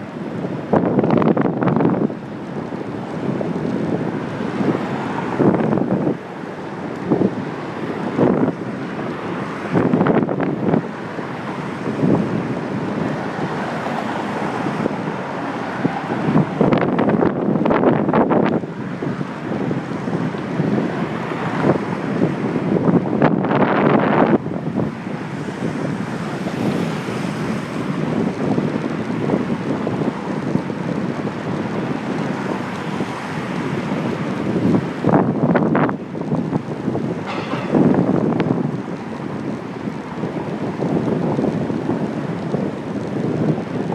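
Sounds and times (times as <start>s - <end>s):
wind buffeting microphone: 0.0s - 43.9s
knocks and rattles: 37.2s - 38.6s.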